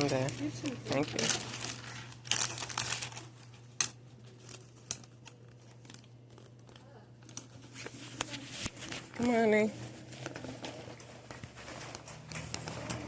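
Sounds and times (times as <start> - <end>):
plastic bags rustling: 0.0 - 13.0.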